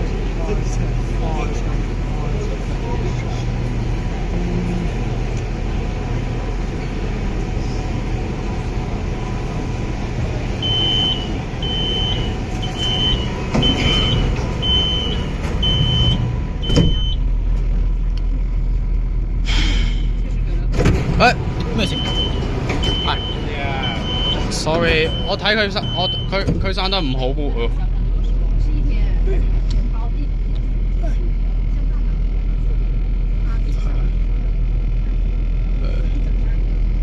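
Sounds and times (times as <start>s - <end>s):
low rumble of train: 0.0s - 37.0s
high warning beeps: 10.6s - 17.2s, 21.8s - 26.4s.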